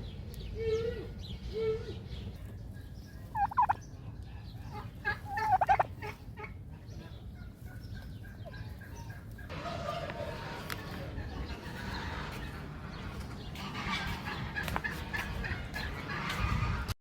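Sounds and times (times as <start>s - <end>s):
turkey gobbling: 3.2s - 3.8s, 4.6s - 12.6s, 13.6s - 16.8s.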